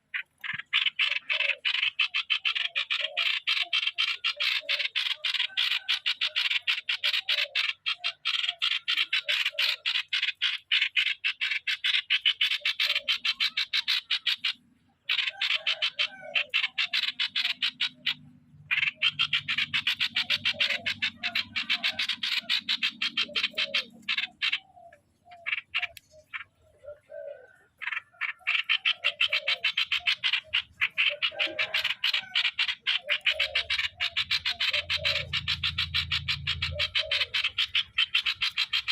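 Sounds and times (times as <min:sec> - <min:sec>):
bird rattling calls: 0:00.1 - 0:27.0, 0:27.8 - 0:38.9.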